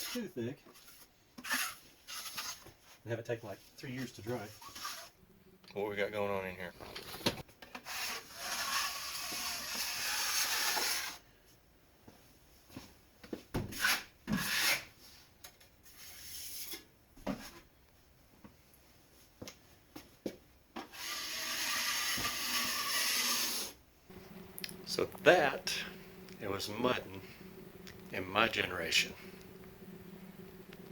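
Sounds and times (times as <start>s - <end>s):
drywall knife scraping: 0.0s - 2.7s, 3.9s - 5.2s, 7.8s - 11.2s, 13.7s - 15.0s, 20.9s - 23.8s.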